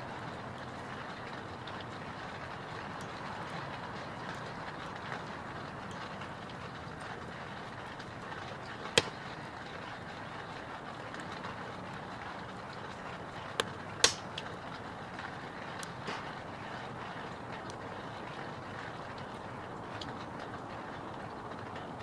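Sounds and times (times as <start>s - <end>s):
fire crackling pops: 8.2s - 9.6s, 12.7s - 18.0s
wood fire hissing: 13.6s - 17.0s.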